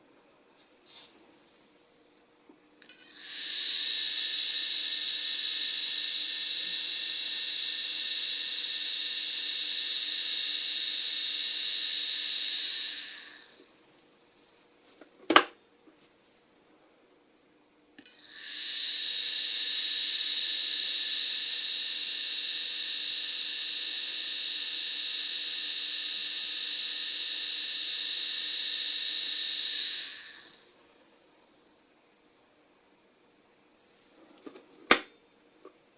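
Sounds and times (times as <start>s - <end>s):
dental handpiece high-pitched whine: 2.8s - 13.7s, 18.0s - 30.7s.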